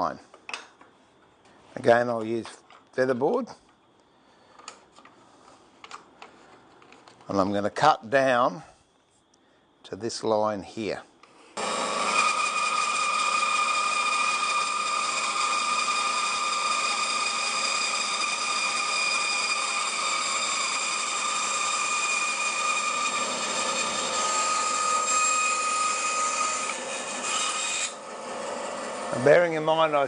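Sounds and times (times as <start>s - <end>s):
bandsaw cutting wood: 11.6s - 29.4s.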